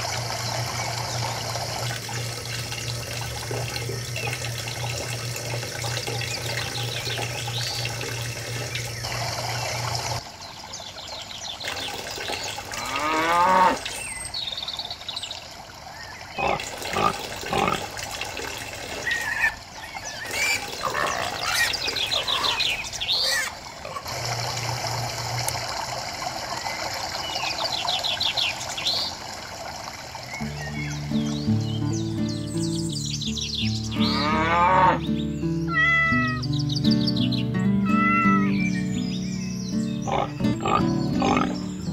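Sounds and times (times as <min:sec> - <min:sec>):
water pouring into trough: 0:00.0 - 0:10.3, 0:11.5 - 0:14.3, 0:15.4 - 0:30.5
water running from hose: 0:00.0 - 0:10.3, 0:11.5 - 0:31.2
electric water pump humming: 0:00.0 - 0:37.3
birds chirping: 0:03.8 - 0:17.8, 0:18.9 - 0:24.7, 0:26.3 - 0:41.9
high rising animal calls: 0:20.2 - 0:24.1, 0:35.7 - 0:36.5, 0:37.8 - 0:38.7.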